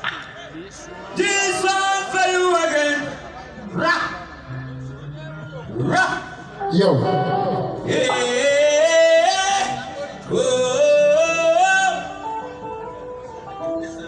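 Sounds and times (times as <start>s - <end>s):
person singing long held notes: 7.0s - 13.0s.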